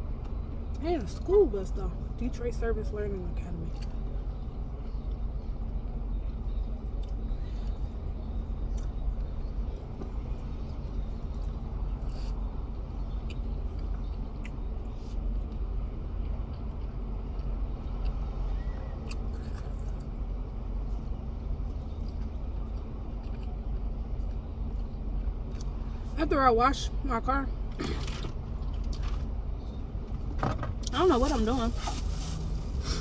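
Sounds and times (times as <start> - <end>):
car engine humming: 30.9 - 33.0.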